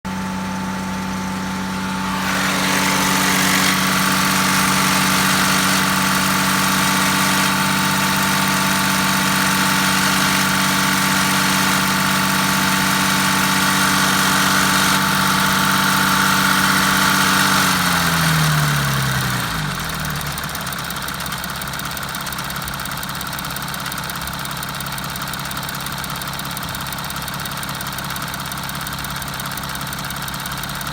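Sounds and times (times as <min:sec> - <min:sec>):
car mechanical hum with whine: 0:00.1 - 0:21.1.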